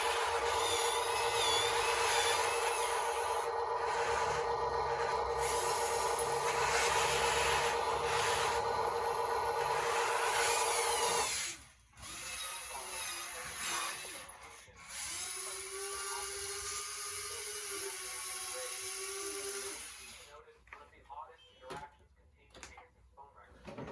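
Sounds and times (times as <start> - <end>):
lower-pitched whine: 0.0 - 11.3
electric motors whining: 0.0 - 14.2.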